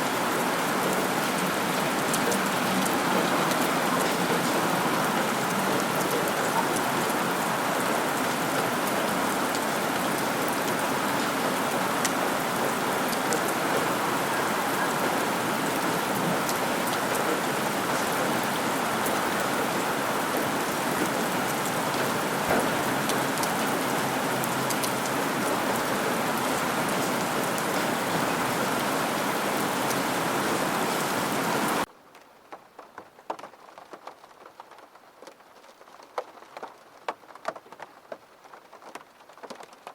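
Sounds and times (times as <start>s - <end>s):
heavy rain falling: 0.0s - 31.9s.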